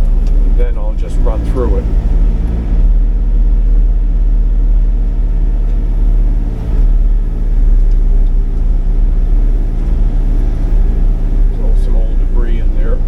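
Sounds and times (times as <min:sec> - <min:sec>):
excavator diesel engine rumbling: 0:00.0 - 0:13.0.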